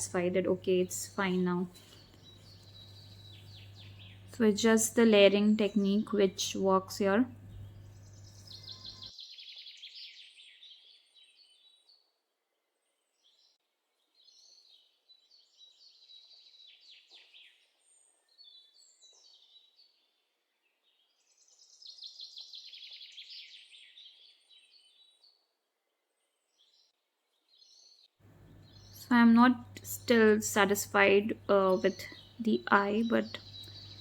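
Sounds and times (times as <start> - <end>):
small birds chirping and trilling: 0.0 - 34.0.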